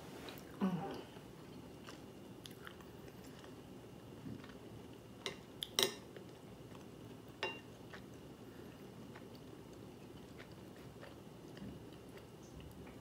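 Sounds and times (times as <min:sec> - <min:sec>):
person chewing: 0:01.4 - 0:03.6, 0:07.6 - 0:13.0.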